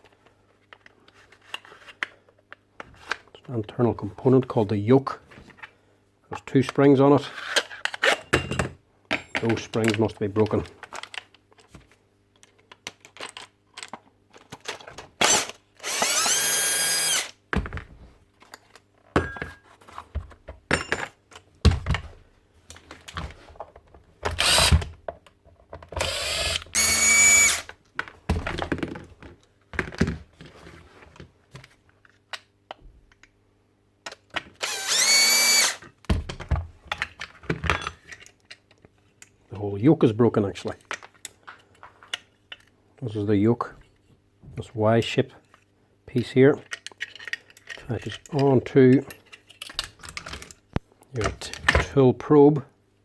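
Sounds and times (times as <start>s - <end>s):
cordless drill spinning up: 15.2s - 17.4s, 24.4s - 24.9s, 26.0s - 27.7s, 34.6s - 35.8s
small metal parts clattering: 46.6s - 50.6s.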